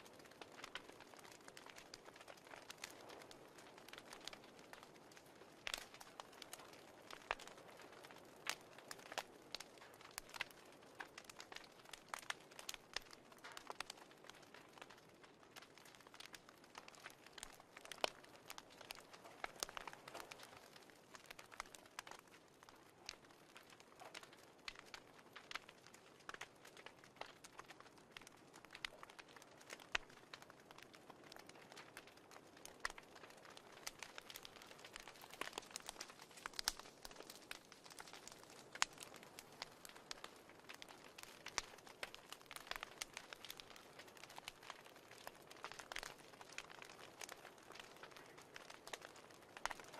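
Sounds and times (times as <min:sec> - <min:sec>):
fireplace crackling: 0:00.0 - 0:49.9.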